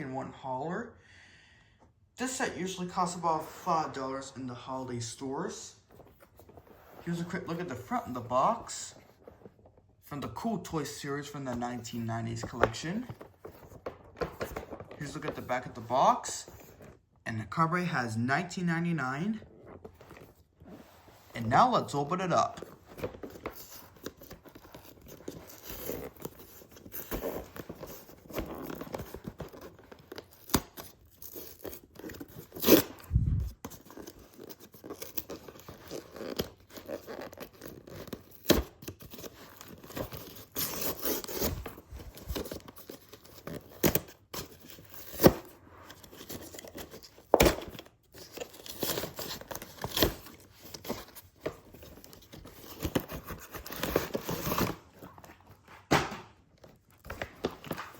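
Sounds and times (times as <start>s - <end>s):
cardboard packaging tearing: 22.5s - 55.4s.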